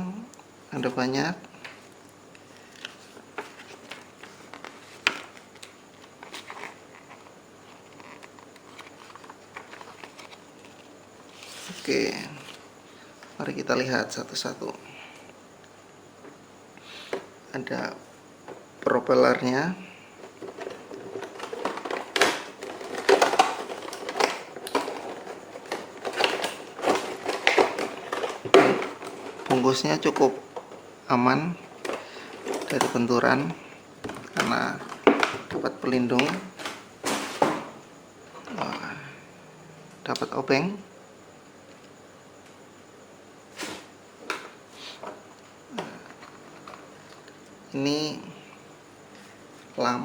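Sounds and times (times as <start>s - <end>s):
plastic packaging crinkling: 2.6s - 12.7s, 20.2s - 30.9s, 31.6s - 37.5s
plastic clicks and rustling: 2.7s - 12.6s, 20.2s - 30.9s, 31.7s - 37.6s, 45.8s - 47.4s.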